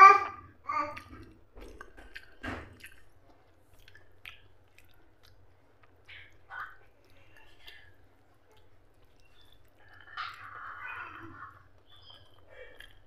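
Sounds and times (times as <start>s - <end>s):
wet chewing: 0.9s - 10.6s, 11.5s - 13.0s
wet mouth smack: 3.8s - 5.4s.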